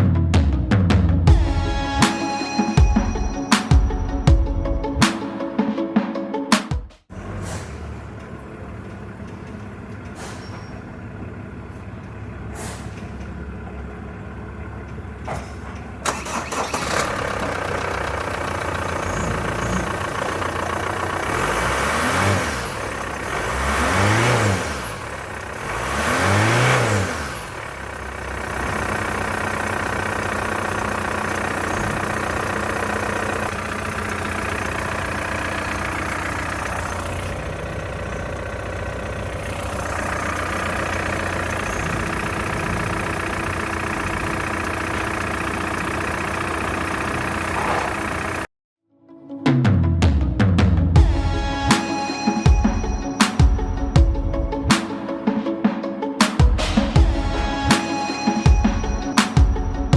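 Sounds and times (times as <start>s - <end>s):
car engine starting and idling: 7.0s - 48.5s, 50.8s - 55.3s, 56.2s - 59.9s
engine revving: 7.1s - 48.5s
engine clicks: 7.2s - 48.5s.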